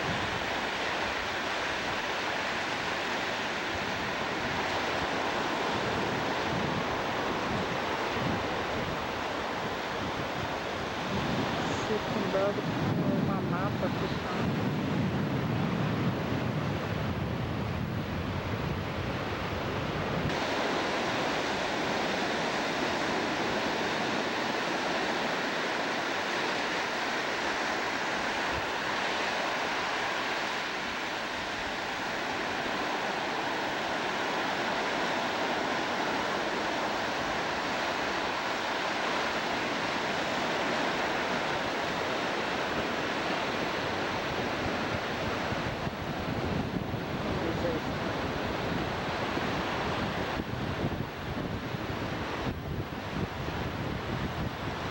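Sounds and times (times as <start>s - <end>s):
surf rushing: 0.0s - 54.9s
wind: 0.0s - 54.9s.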